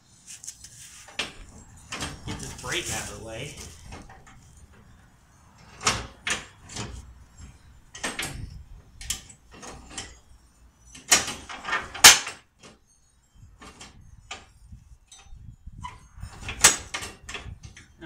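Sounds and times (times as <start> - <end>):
metal parts knocking and scraping: 5.6 - 12.9, 13.6 - 18.0.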